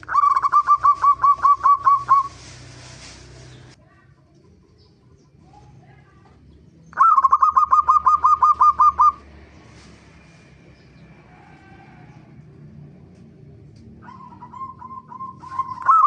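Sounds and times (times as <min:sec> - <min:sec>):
dove calling in clipped notes: 0:00.0 - 0:02.5, 0:06.8 - 0:09.3, 0:13.8 - 0:16.0.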